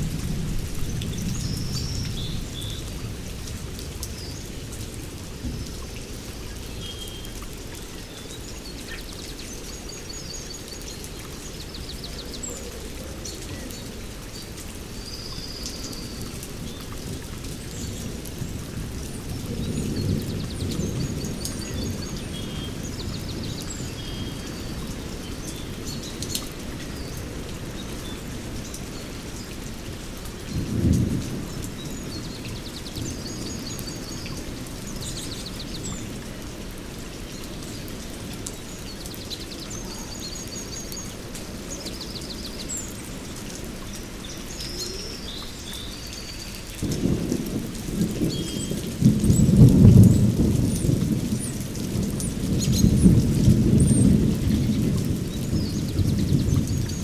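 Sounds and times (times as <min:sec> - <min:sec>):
steady rain: 0:00.0 - 0:57.0
thunder rumble: 0:46.8 - 0:57.0.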